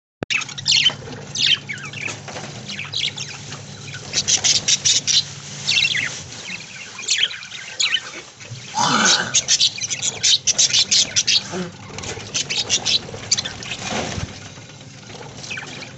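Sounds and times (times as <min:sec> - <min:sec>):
budgerigars chirping: 0:00.3 - 0:14.2, 0:15.4 - 0:15.9.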